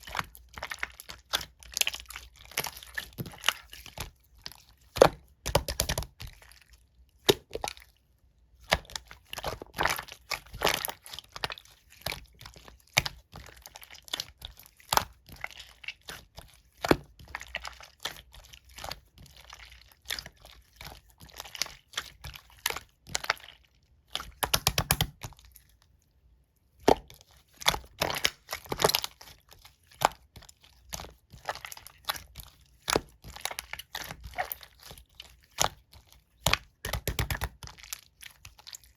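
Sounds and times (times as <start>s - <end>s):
slime crackling and popping: 24.2s - 25.3s, 26.8s - 29.4s, 36.4s - 38.9s.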